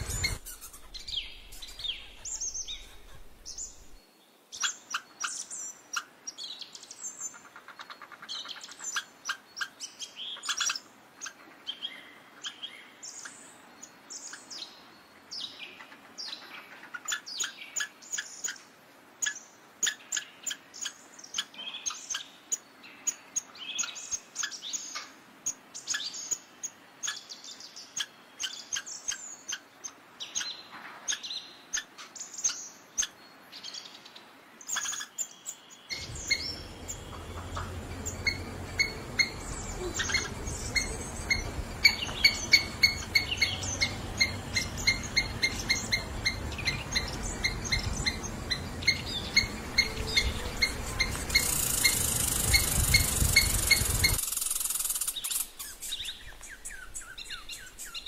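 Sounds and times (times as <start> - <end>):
squirrel chirping and chattering: 0.0 - 4.0, 35.9 - 56.1.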